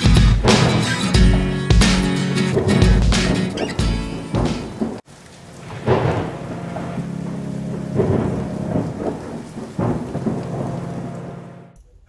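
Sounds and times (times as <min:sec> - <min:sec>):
thunder rumbling: 0:00.0 - 0:11.7
steady rain: 0:00.0 - 0:11.8.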